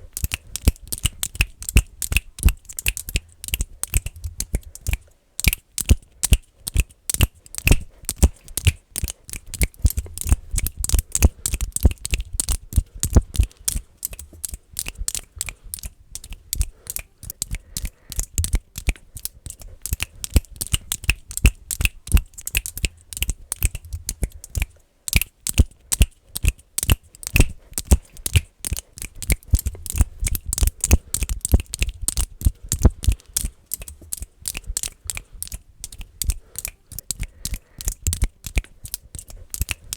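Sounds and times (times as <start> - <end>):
fast finger clicking: 0.0 - 39.9.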